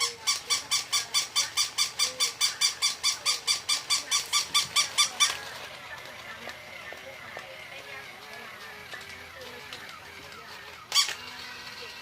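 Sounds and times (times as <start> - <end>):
toy high squeaks: 0.0 - 5.6, 10.7 - 12.0.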